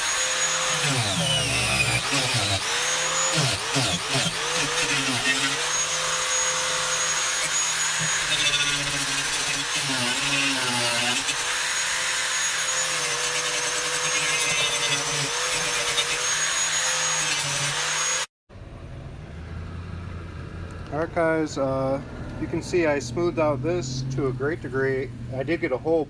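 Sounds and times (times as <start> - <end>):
rotary tool motor whine grinding: 0.0 - 18.3.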